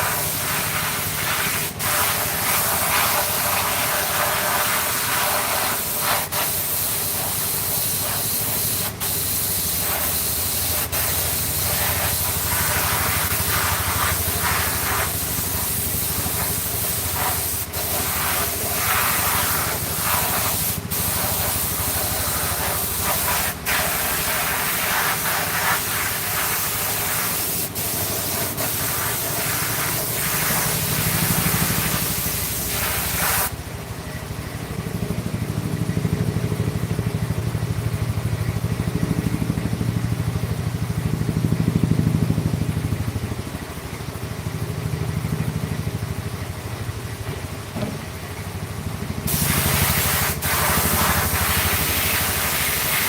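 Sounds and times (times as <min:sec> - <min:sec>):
air spraying hiss: 0:00.0 - 0:33.5, 0:49.3 - 0:53.0.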